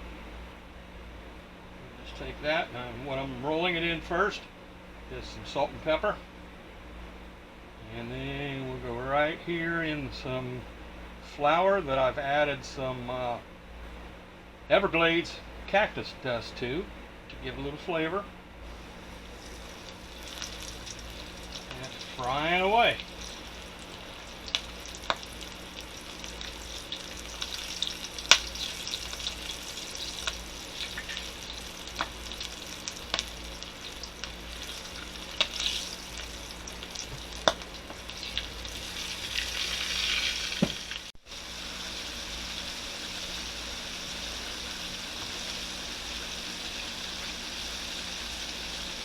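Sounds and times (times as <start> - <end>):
chicken frying in hot oil: 18.6 - 49.0
oil popping: 18.8 - 41.2.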